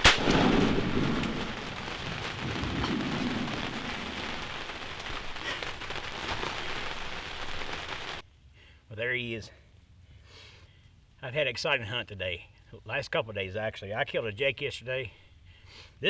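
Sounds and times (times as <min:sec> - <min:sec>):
low rumbles: 0:00.0 - 0:08.2
steady rain falling: 0:00.0 - 0:08.3.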